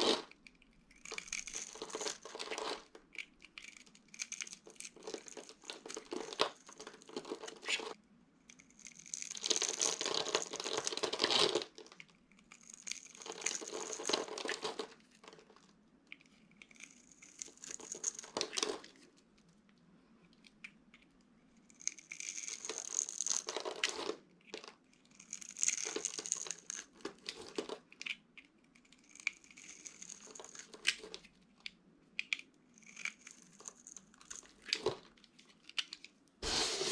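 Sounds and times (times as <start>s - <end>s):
dry soap crunching: 0.0s - 7.8s, 8.5s - 15.0s.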